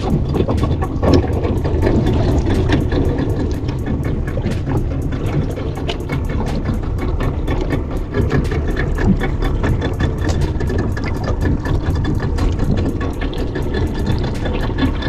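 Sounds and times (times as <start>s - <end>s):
boat engine running: 0.0s - 15.0s
rapid small clicks and slaps: 0.0s - 15.0s.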